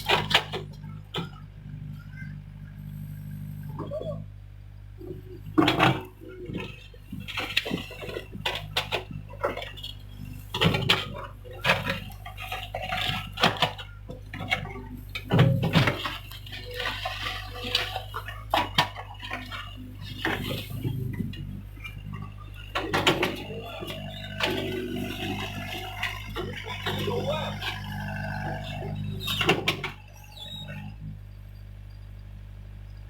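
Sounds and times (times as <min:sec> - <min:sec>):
excavator engine running: 0:00.0 - 0:33.0.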